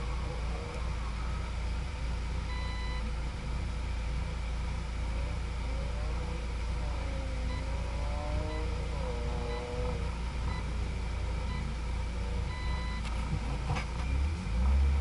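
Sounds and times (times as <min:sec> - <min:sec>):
car engine idling: 0:00.0 - 0:15.0
short high beep: 0:02.5 - 0:03.1.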